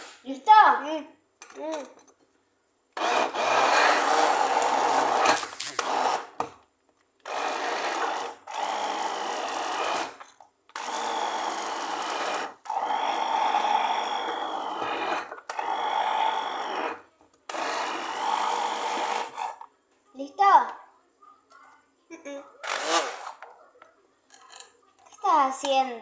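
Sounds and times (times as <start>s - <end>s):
blender motor whining: 3.0s - 6.5s, 7.2s - 19.6s, 22.6s - 23.4s.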